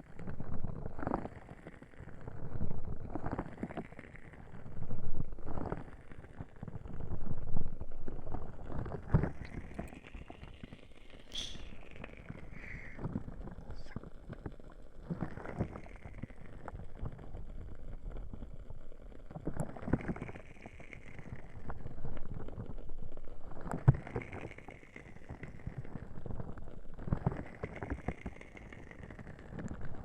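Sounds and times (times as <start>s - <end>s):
muffled rushing from ears being covered: 11.3s - 13.0s.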